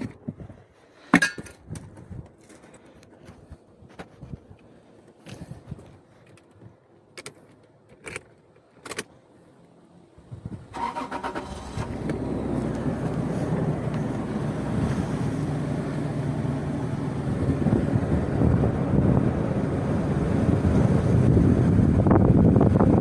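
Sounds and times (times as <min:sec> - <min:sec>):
engine starter cranking: 0:10.7 - 0:13.7
car engine idling: 0:10.8 - 0:23.0.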